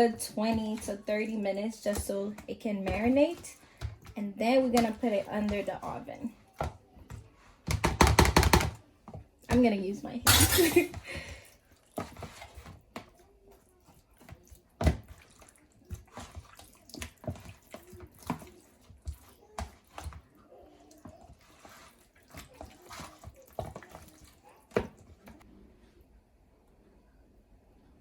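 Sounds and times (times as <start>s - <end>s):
wet squelching of chicken mixing: 11.0s - 25.5s.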